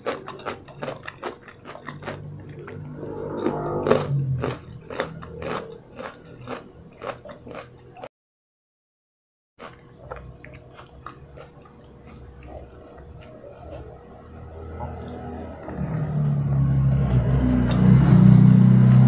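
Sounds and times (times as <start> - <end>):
close chewing with wet mouth clicks: 9.6 - 13.9.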